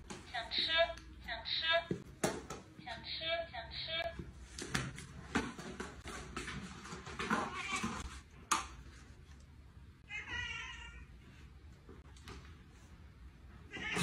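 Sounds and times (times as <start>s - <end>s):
cat meowing: 10.0s - 11.1s, 13.7s - 14.0s.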